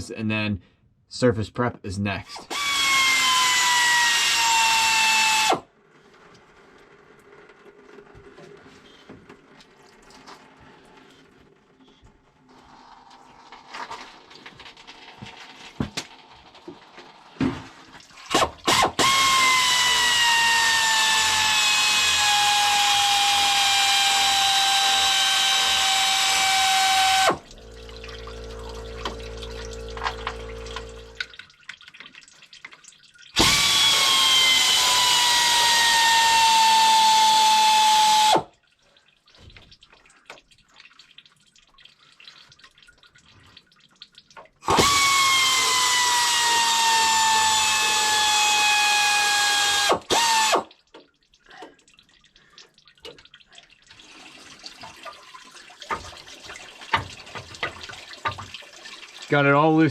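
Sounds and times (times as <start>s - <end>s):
air ratchet whirring: 2.4s - 5.6s, 18.3s - 27.4s, 33.4s - 38.5s, 44.6s - 50.7s
low steady hum: 27.4s - 31.4s.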